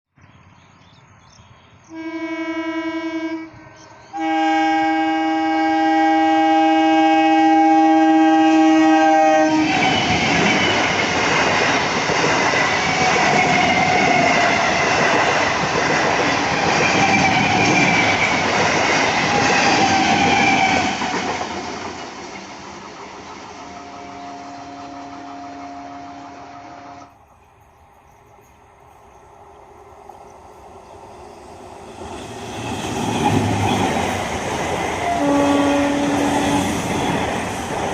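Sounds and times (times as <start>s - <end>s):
train horn blast: 1.9s - 10.2s, 23.6s - 27.1s, 35.0s - 37.1s
train wheels clattering over rails: 9.7s - 23.6s, 30.1s - 37.9s.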